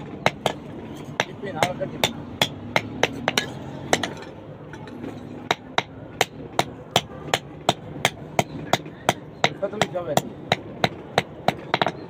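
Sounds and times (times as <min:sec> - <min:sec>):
hammer striking metal: 0:00.0 - 0:12.0.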